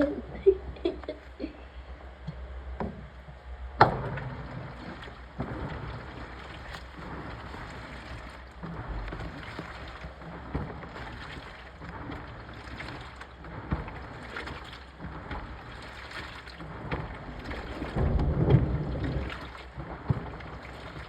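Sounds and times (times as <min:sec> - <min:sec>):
washing machine water sloshing: 0:00.0 - 0:01.4, 0:02.2 - 0:21.0.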